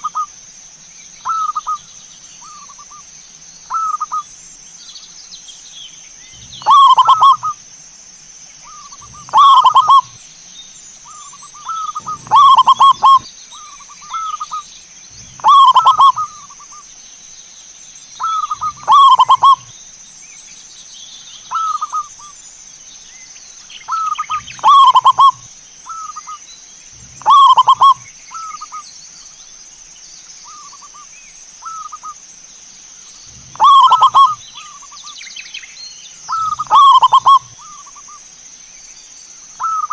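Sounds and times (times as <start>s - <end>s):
faint high-pitched hiss: 0.0s - 39.9s
dove cooing: 6.4s - 7.6s, 8.6s - 10.2s, 11.1s - 14.6s, 15.2s - 16.6s, 18.2s - 19.7s, 23.9s - 26.4s, 27.0s - 28.8s, 33.3s - 34.8s, 36.3s - 38.0s, 39.6s - 39.9s.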